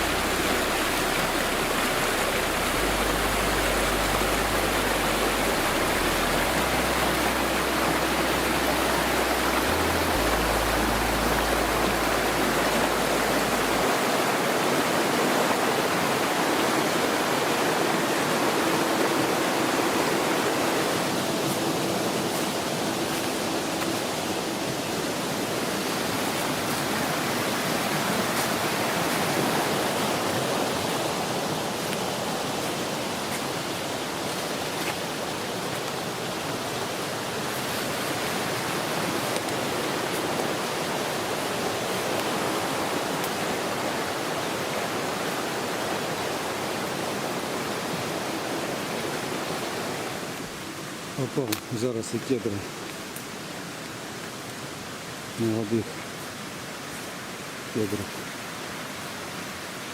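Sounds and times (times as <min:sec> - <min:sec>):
low rumble: 0:00.0 - 0:13.8
fast stream rushing: 0:00.0 - 0:59.9.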